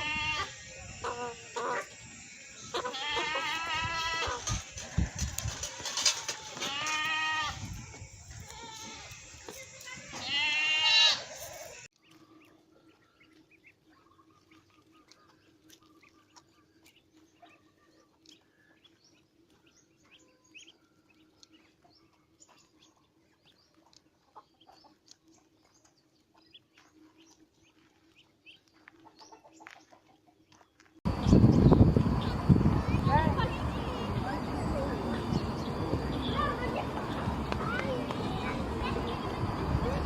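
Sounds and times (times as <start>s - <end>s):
goat bleating: 0.0s - 0.6s, 2.7s - 4.5s, 6.2s - 7.6s, 10.0s - 11.7s.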